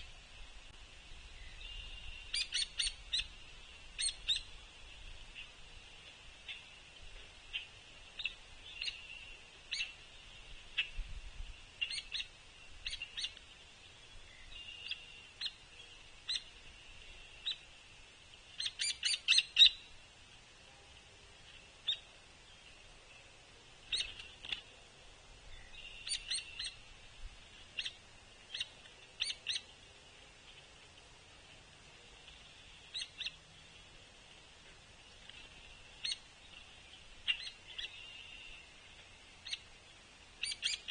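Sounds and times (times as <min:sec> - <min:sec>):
woodpecker peek calls: 0:01.6 - 0:04.6, 0:07.5 - 0:10.0, 0:11.8 - 0:13.5, 0:14.4 - 0:16.6, 0:18.5 - 0:19.9, 0:25.6 - 0:26.9, 0:27.5 - 0:29.8, 0:32.4 - 0:33.4, 0:35.6 - 0:38.6, 0:39.4 - 0:39.7, 0:40.4 - 0:40.9
faint high buzz: 0:19.7 - 0:40.7.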